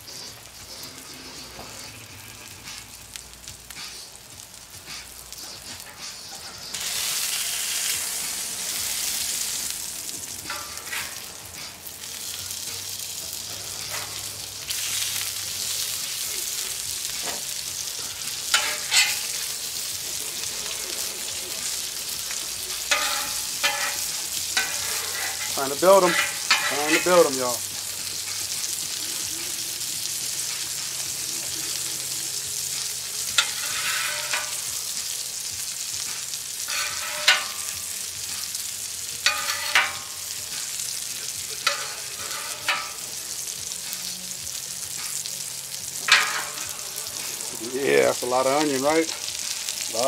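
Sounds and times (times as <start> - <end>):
burger patties sizzling on griddle: 0.0 - 50.0
metal spatula scraping and tapping: 10.4 - 11.3, 13.8 - 14.3, 18.5 - 19.5, 22.7 - 27.3, 33.3 - 34.8, 36.6 - 37.9, 39.2 - 40.8, 41.6 - 43.1, 46.0 - 46.8.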